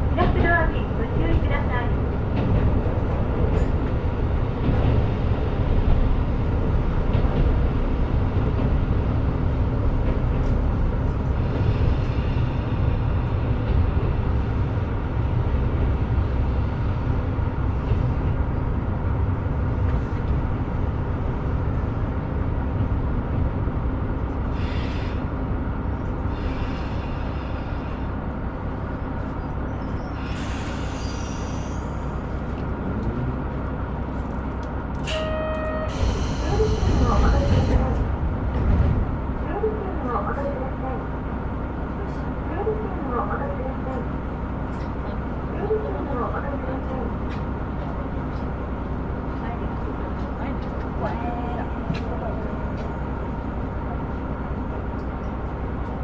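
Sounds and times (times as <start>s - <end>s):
diesel railcar rumbling on rails: 0.0s - 56.0s
short hisses: 30.2s - 32.1s.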